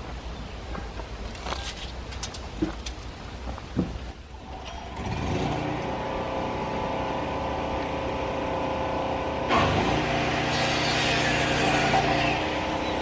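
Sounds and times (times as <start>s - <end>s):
engine running: 4.3s - 13.0s.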